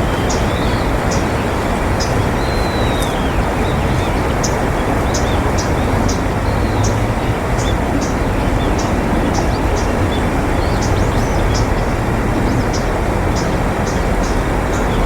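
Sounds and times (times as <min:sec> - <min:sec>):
whistled bird call: 0:00.0 - 0:04.2.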